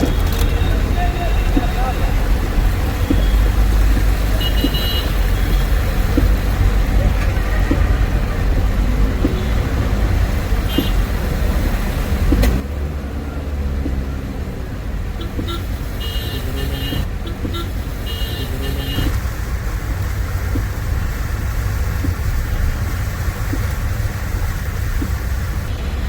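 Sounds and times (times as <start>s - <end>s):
road traffic rumble: 0.0s - 26.0s
click: 12.3s - 12.6s.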